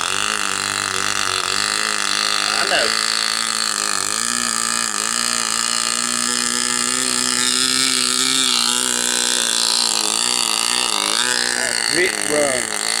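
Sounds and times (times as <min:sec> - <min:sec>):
model aircraft engine running: 0:00.0 - 0:13.0.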